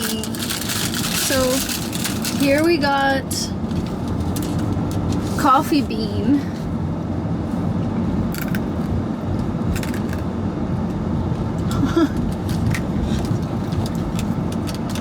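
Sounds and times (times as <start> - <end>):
clicks and crinkles: 0.0 - 2.8, 3.7 - 5.4, 11.4 - 15.0
low background rumble: 0.0 - 15.0.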